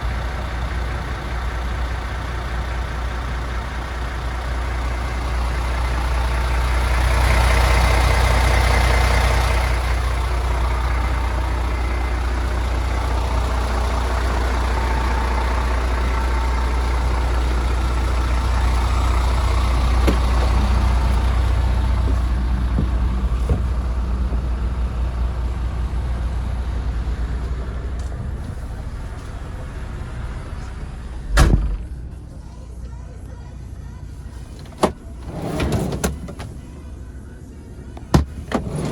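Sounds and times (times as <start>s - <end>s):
truck diesel engine idling: 0.0s - 38.9s
sharp bang: 31.3s - 32.1s.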